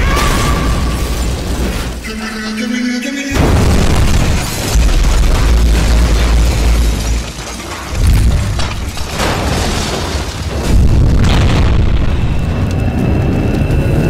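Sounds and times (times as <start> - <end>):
explosion booms: 3.3 - 7.3, 7.9 - 14.0
deep rumble: 3.4 - 14.0.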